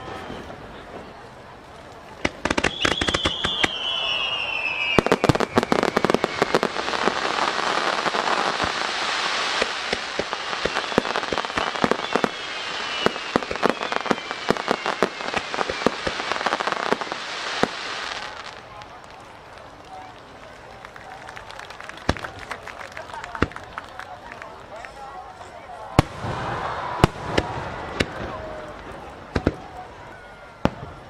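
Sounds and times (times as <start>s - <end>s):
firework whistle falling: 0.0s - 0.6s, 2.5s - 7.5s, 8.6s - 18.4s
firework pops and crackling: 1.8s - 25.0s, 26.0s - 29.9s.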